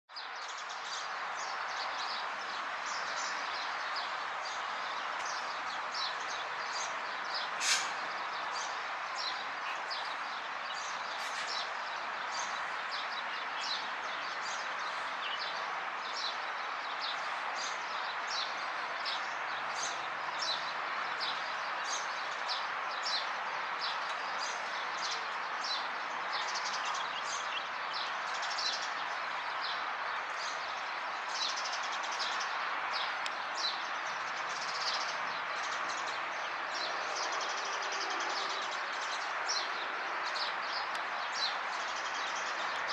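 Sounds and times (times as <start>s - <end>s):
birds chirping: 0.1s - 42.9s
steady hiss: 7.5s - 8.2s.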